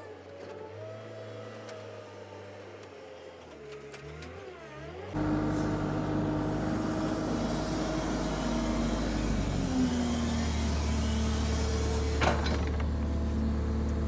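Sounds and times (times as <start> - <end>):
vehicle engine running: 5.1 - 14.0.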